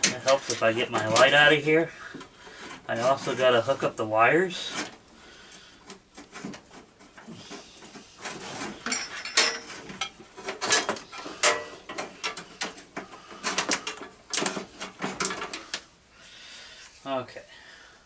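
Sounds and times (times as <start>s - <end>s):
tools and parts clanking: 0.0s - 3.7s, 5.8s - 15.9s.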